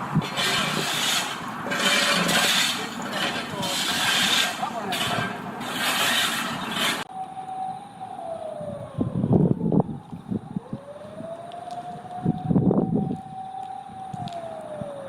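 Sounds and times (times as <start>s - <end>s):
low rumbling buffets: 0.0s - 15.0s
siren wailing: 7.0s - 15.0s.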